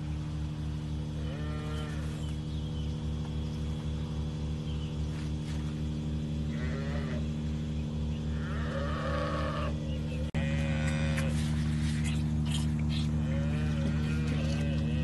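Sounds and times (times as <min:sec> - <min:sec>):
pulsing machine hum: 0:00.0 - 0:15.0
calves bleating: 0:01.2 - 0:02.2, 0:06.5 - 0:07.2, 0:08.3 - 0:09.8, 0:10.4 - 0:11.8, 0:13.0 - 0:15.0.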